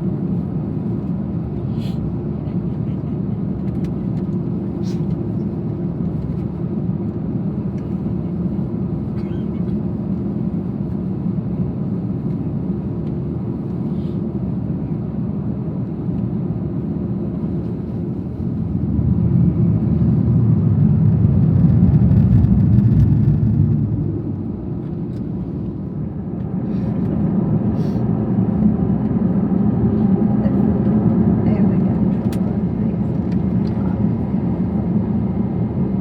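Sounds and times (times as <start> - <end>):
airplane cabin rumble: 0.0 - 36.0.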